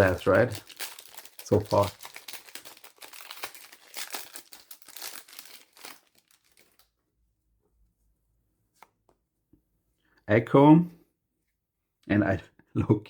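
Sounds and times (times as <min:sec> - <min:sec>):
wrapper crinkling and cards rustling: 0:00.0 - 0:07.0.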